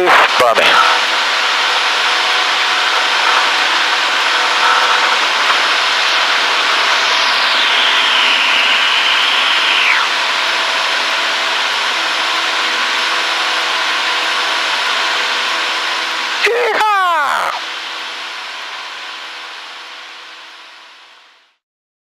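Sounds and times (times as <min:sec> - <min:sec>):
aircraft engine drone: 0:00.3 - 0:20.8
high whistling tone: 0:03.8 - 0:11.1.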